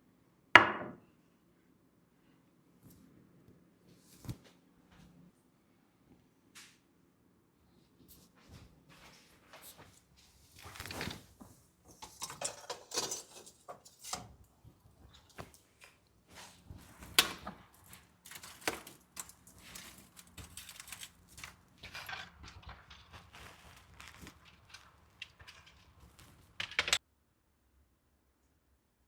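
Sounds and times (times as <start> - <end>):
rustling: 8.5 - 27.0
clicks and knocks of handled objects: 15.1 - 27.0.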